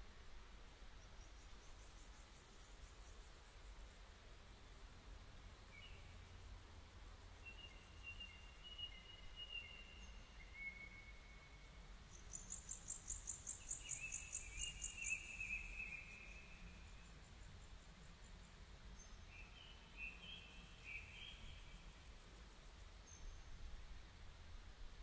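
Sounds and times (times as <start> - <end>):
birds whistling thin notes: 7.4 - 17.1, 19.0 - 21.8.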